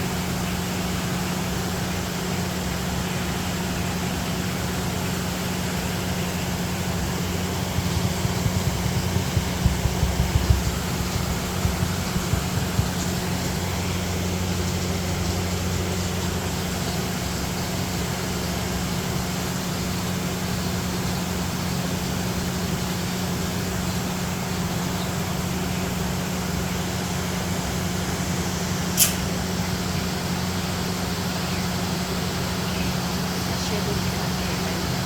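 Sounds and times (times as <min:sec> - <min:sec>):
steady low hum: 0:00.0 - 0:35.0
soft low thumps: 0:06.0 - 0:15.2
background hiss: 0:28.7 - 0:29.7
sharp click: 0:29.0 - 0:29.4.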